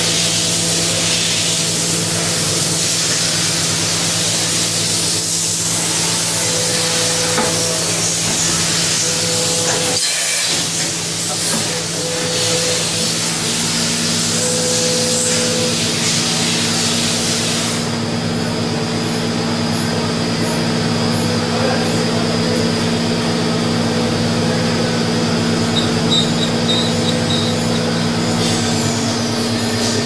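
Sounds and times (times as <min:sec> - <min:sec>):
machine humming: 0:22.1 - 0:30.0.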